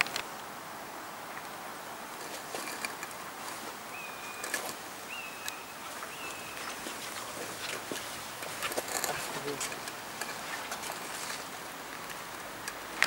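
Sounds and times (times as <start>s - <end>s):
outdoor hiss: 0.0s - 13.0s
bird whistling: 3.9s - 7.0s
footsteps on paving tiles: 5.8s - 11.5s.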